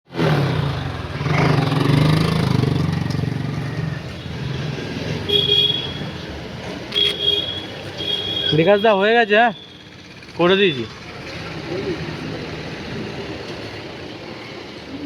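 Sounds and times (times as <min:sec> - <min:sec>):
vehicle engine running: 0:09.6 - 0:13.7.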